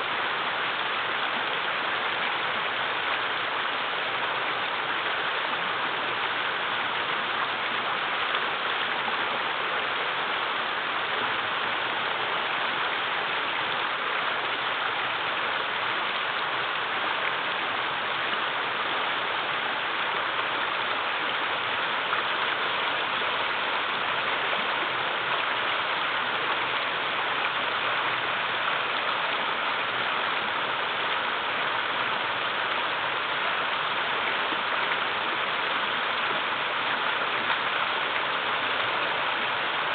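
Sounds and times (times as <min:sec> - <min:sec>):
river water rushing over waterfalls: 0:00.0 - 0:39.9.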